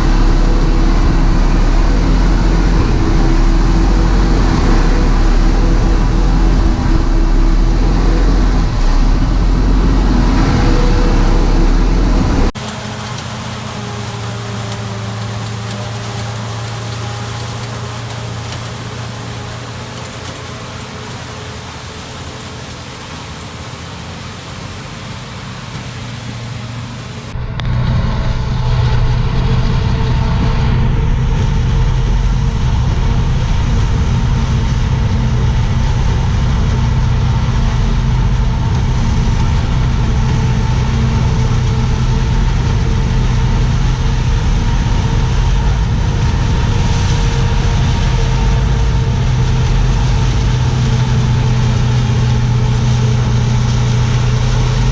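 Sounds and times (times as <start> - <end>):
harvest machinery engine running: 0.0 - 54.9.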